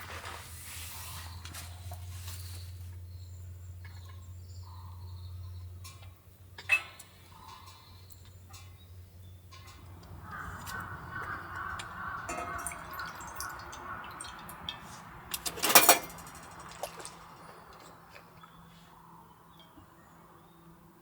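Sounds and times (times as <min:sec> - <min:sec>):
liquid pouring: 0:10.1 - 0:17.1
sharp clatter: 0:12.3 - 0:18.0.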